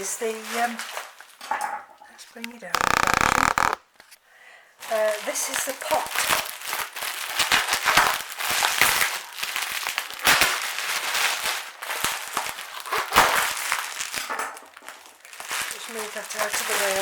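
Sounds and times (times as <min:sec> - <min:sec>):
packing peanuts rustling: 0:14.8 - 0:17.0.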